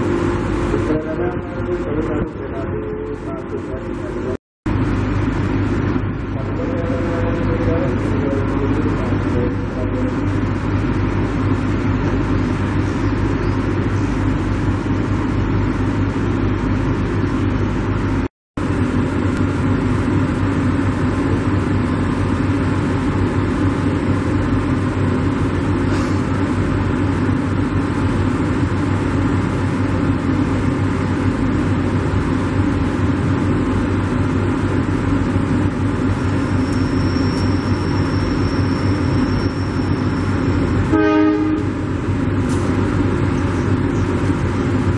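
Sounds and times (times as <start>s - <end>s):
loud engine rumble: 0.0s - 44.9s
thin high whine: 36.2s - 42.8s.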